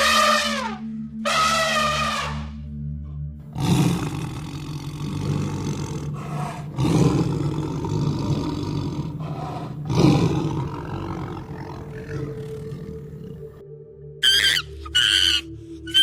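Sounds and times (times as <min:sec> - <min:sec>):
large animal deep rough calls: 0:03.5 - 0:13.6.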